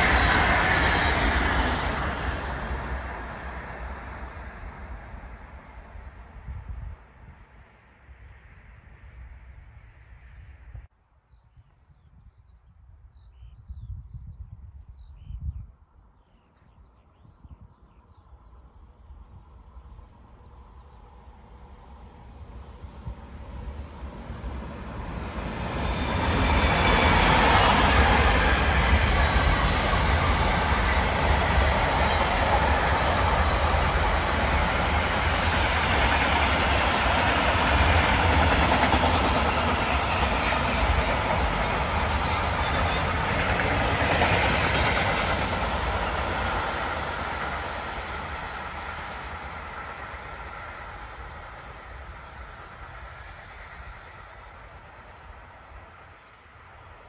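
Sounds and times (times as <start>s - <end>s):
freight train passing: 0.0s - 10.9s, 17.3s - 57.0s.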